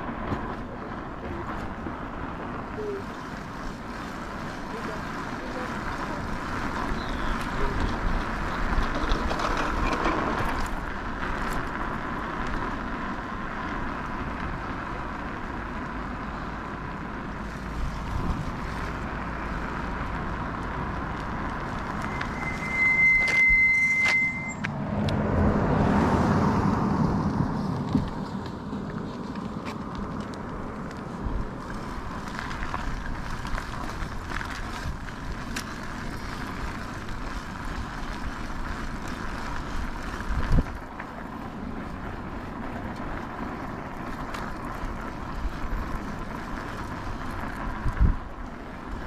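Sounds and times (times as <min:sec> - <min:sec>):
car passing: 0:00.0 - 0:49.0
tyre noise: 0:00.0 - 0:49.0
faint steady whine: 0:10.8 - 0:24.7
wind rush on microphone: 0:17.3 - 0:41.0, 0:41.7 - 0:49.0
high steady beep: 0:22.0 - 0:24.7.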